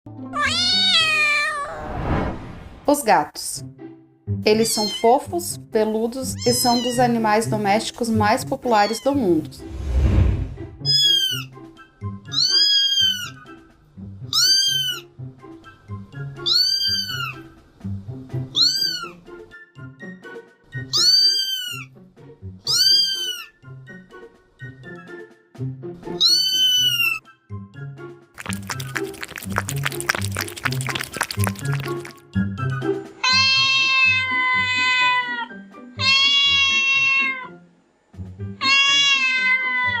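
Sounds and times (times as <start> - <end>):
cat meowing: 0.4 - 1.8, 4.7 - 5.1, 6.4 - 7.0, 10.9 - 11.5, 12.3 - 13.4, 14.3 - 15.0, 16.4 - 17.4, 18.6 - 19.2, 20.9 - 21.9, 22.7 - 23.6, 26.2 - 27.2, 33.2 - 37.6, 38.6 - 40.0
background music with steady beat: 15.0 - 21.2.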